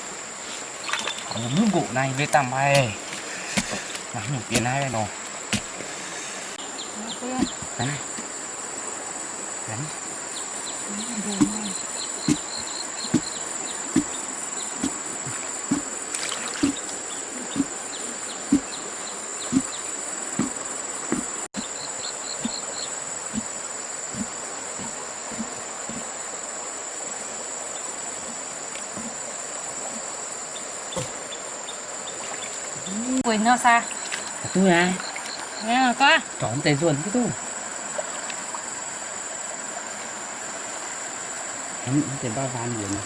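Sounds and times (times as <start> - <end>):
insects chirring: 0.0 - 43.0
dull thumps: 2.7 - 5.9, 7.2 - 8.3, 11.3 - 22.7, 23.3 - 26.2, 30.9 - 31.2.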